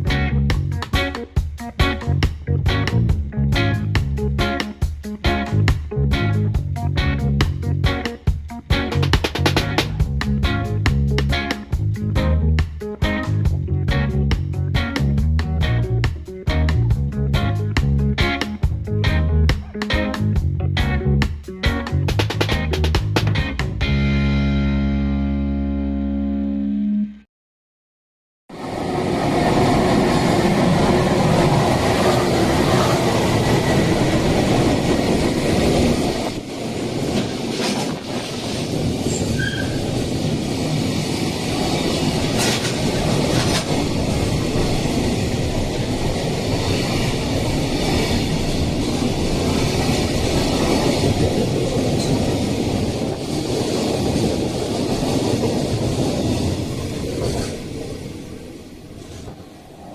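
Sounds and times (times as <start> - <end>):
train rumbling on rails: 0.0 - 19.5, 20.1 - 23.8, 28.5 - 59.9.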